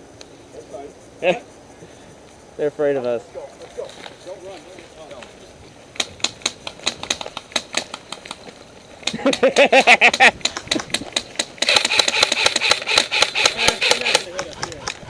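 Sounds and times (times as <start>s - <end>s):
airsoft guns firing full-auto: 6.0s - 8.4s, 10.1s - 14.4s
sharp single clicks: 6.0s - 15.0s.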